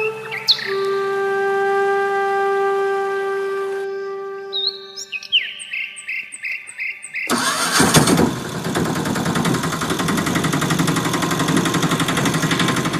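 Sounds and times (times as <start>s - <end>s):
small tractor engine running: 7.3s - 12.9s.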